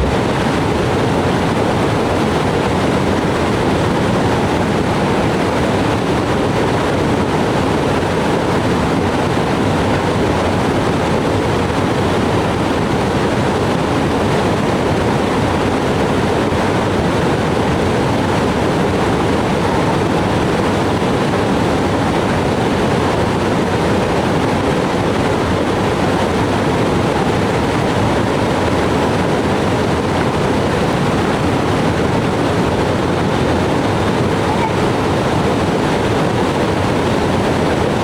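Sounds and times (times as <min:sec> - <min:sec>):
loud rushing water: 0:00.0 - 0:05.4, 0:30.1 - 0:38.0.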